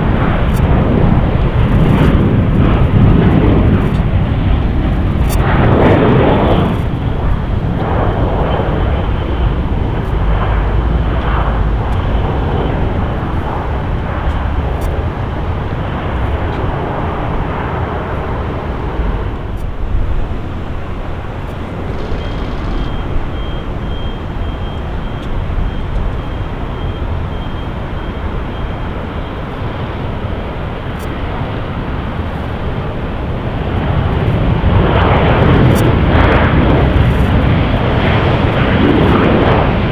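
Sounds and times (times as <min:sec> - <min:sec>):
jet engines rumbling: 0:00.0 - 0:39.9
faint high whine: 0:03.8 - 0:31.3.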